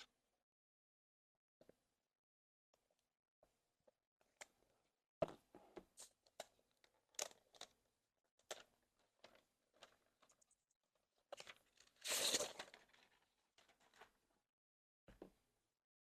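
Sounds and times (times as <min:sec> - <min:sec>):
box packaging rustling: 0:11.4 - 0:14.1
packaging tearing: 0:11.9 - 0:13.2.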